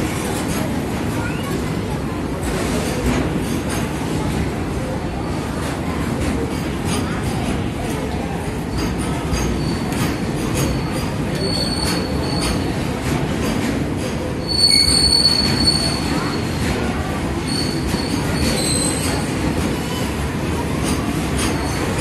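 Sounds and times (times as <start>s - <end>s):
train wheels rumbling on rail: 0.0s - 22.0s
high wheel squeals: 10.8s - 12.7s, 14.4s - 16.6s, 17.4s - 19.2s.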